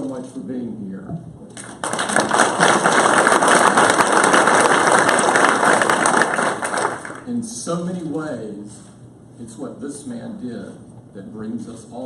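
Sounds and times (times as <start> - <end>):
audience applauding: 1.6 - 7.3.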